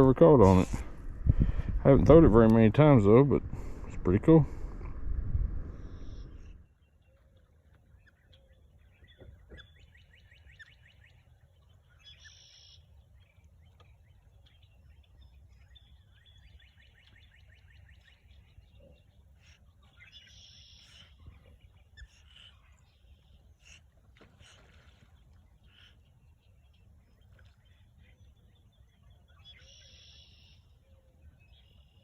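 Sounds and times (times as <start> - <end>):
low steady rumble: 0.0 - 6.7
songbird singing: 5.6 - 32.0.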